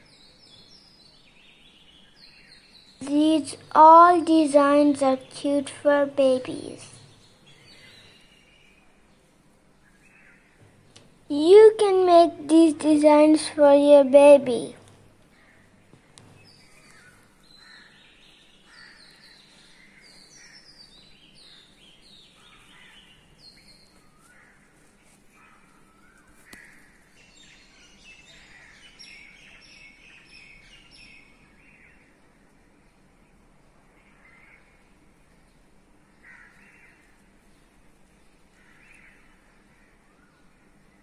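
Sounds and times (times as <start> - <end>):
birds chirping: 0.0 - 41.0
light steady hiss: 0.0 - 41.0.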